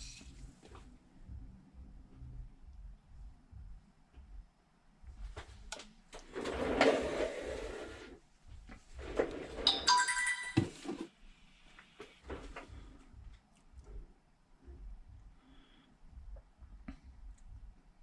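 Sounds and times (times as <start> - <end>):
phone electronic chime: 9.7 - 10.8.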